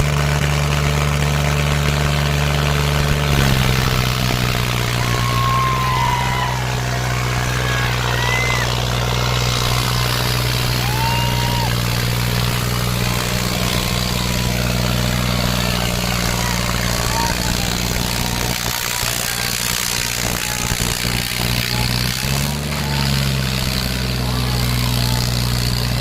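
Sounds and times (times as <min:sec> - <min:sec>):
diesel tractor engine running: 0:00.0 - 0:26.0.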